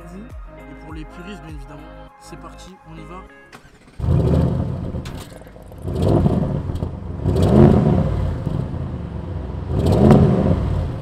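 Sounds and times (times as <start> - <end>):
car engine revving: 3.6 - 11.0.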